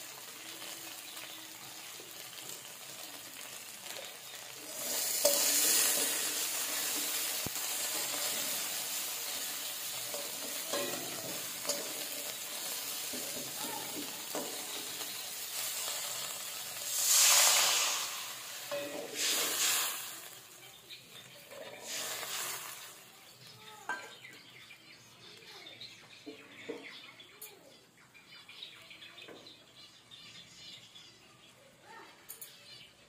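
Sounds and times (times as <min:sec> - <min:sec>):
water poured into pan: 0:00.0 - 0:20.8, 0:21.4 - 0:23.2
hot oil hissing loudly: 0:00.0 - 0:24.0
paste sizzling in hot oil: 0:00.0 - 0:25.1
metal spatula scraping pan: 0:04.7 - 0:19.8.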